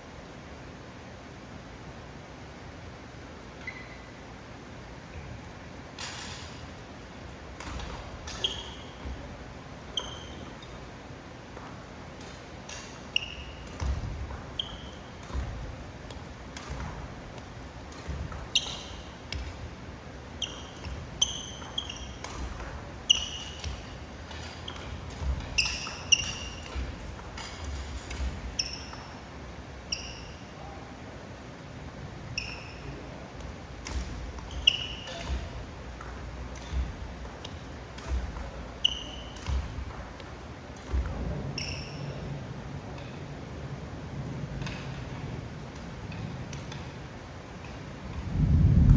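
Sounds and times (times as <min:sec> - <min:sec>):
shoes squeaking on court: 0:03.5 - 0:04.4, 0:06.0 - 0:43.2.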